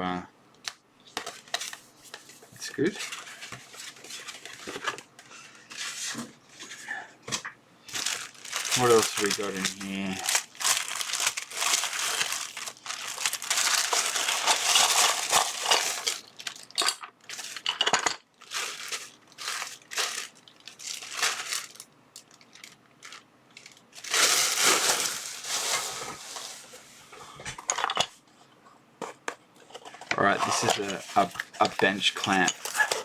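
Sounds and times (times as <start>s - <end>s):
plastic packaging crinkling: 7.9s - 26.7s, 30.2s - 33.0s.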